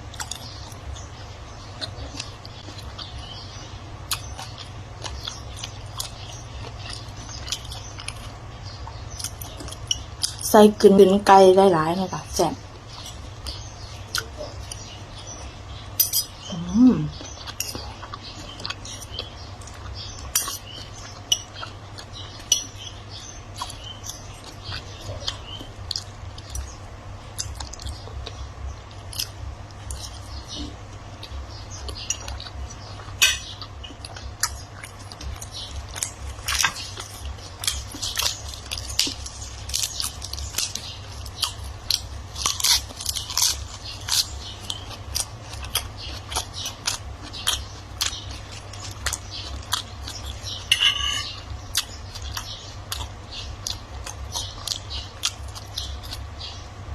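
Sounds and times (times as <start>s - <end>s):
person chewing and crunching food: 0.0s - 10.6s, 12.6s - 56.9s
steady low hum: 0.0s - 56.9s.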